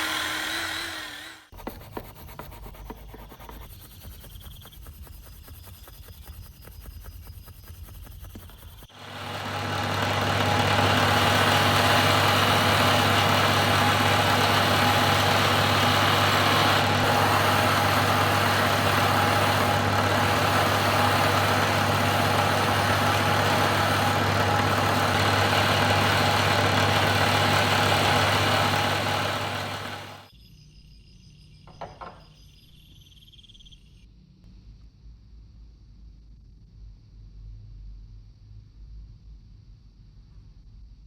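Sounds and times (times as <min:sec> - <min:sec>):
machine humming with hiss: 0:04.3 - 0:30.3.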